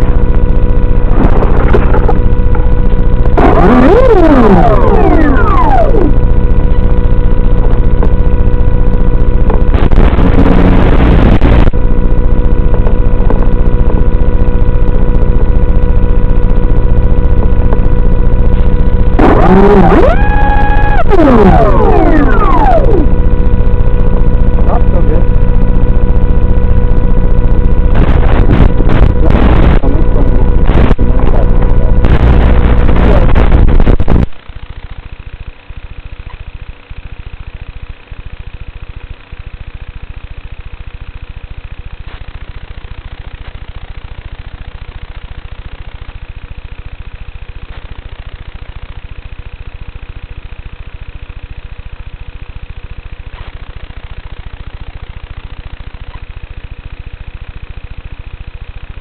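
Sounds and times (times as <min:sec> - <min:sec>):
electric motor and propeller whine: 0:00.0 - 0:59.0
rush of air noise: 0:00.9 - 0:02.4.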